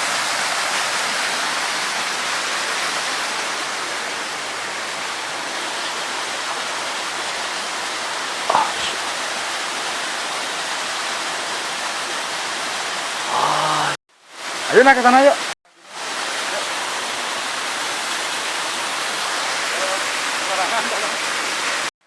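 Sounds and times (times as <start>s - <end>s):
flowing water rushing: 0.0s - 21.9s.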